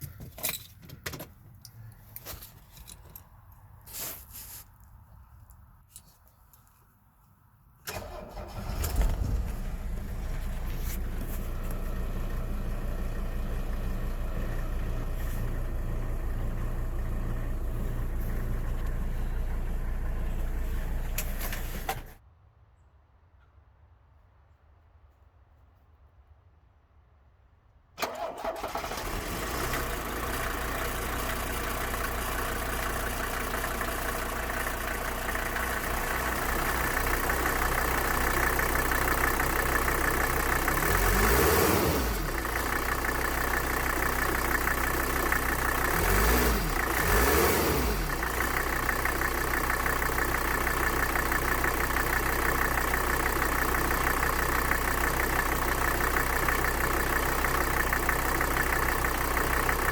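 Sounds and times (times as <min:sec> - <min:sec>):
diesel engine revving and idling: 0:07.9 - 0:22.2, 0:28.0 - 0:59.9.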